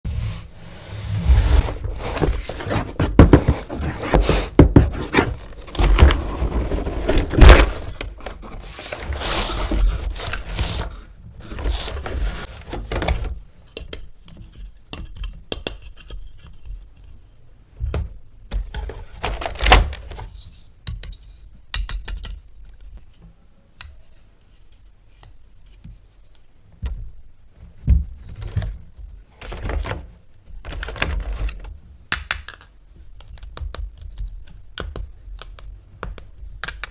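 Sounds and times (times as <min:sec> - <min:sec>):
packaging rustling: 0:01.6 - 0:11.0.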